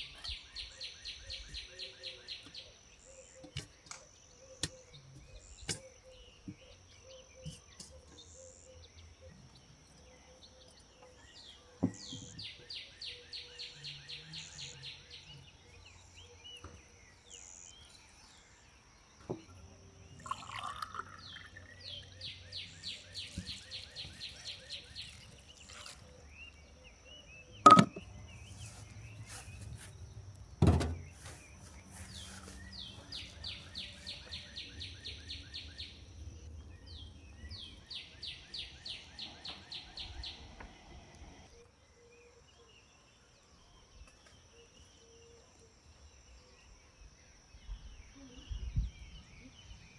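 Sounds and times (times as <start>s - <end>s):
sharp loud knocks: 27.7s - 28.0s.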